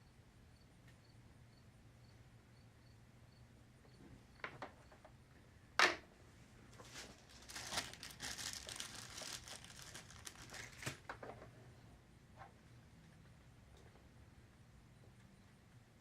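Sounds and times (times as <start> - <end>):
plastic packaging crinkling: 6.8 - 11.1.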